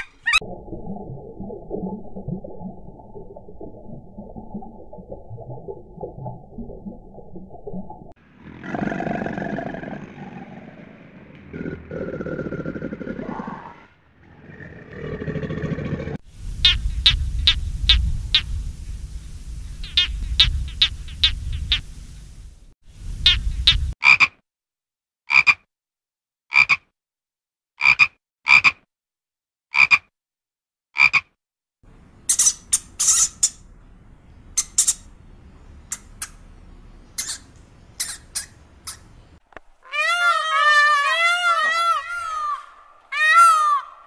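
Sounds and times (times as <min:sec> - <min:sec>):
frogs croaking: 0:16.4 - 0:22.5, 0:23.1 - 0:24.3.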